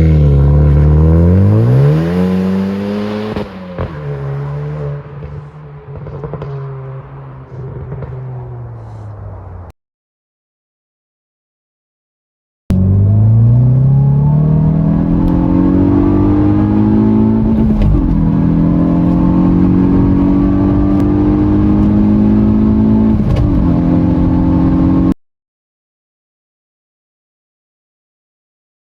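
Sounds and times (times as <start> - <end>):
car engine accelerating hard: 0.0 - 9.1, 12.7 - 25.2.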